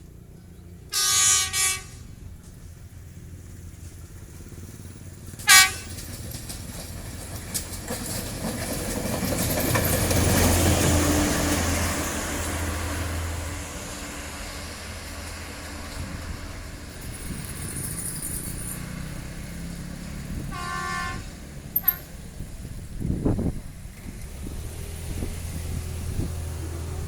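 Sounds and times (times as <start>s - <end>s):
passing train rumble: 0.0s - 27.0s
train horn blast: 0.9s - 2.3s, 5.4s - 6.1s, 20.4s - 22.0s.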